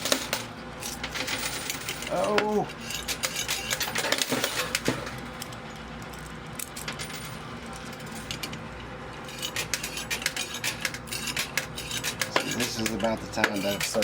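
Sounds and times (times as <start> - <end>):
coins clinking and dropping: 0.0 - 5.5, 6.1 - 8.5
coin pusher machine hum: 0.0 - 14.0.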